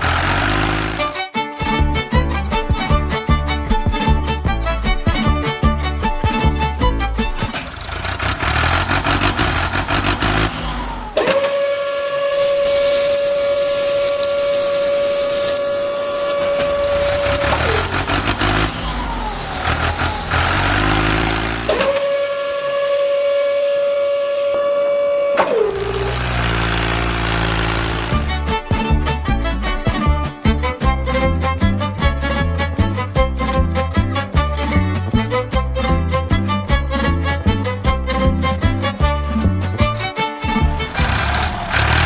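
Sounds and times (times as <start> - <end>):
engine revving to high whine: 0.0 - 1.2, 7.4 - 28.6, 40.8 - 42.0
engine low rumbling idle: 3.7 - 11.2, 15.6 - 22.0, 25.5 - 29.5, 39.8 - 42.0.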